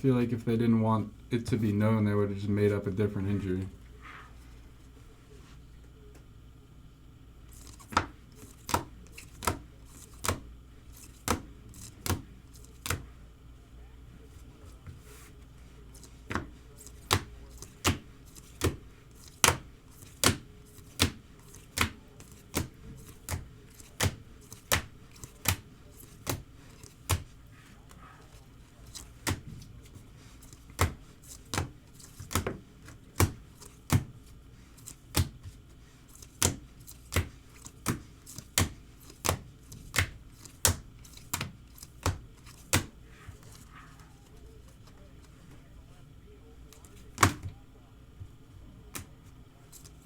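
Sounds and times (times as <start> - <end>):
cards tapping on a table: 7.6 - 10.4, 16.0 - 27.3, 30.6 - 34.1, 36.2 - 43.6.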